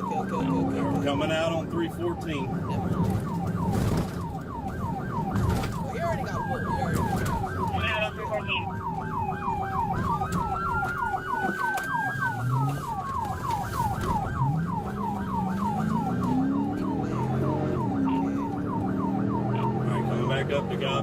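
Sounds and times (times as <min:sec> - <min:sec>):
police siren yelp: 0:00.0 - 0:21.0
slower siren tone: 0:01.9 - 0:20.8
vehicle engine accelerating: 0:14.1 - 0:21.0.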